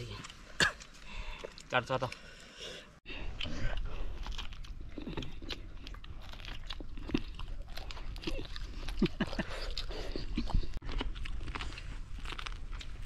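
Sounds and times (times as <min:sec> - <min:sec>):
chewing corn on the cob: 0:03.2 - 0:13.0.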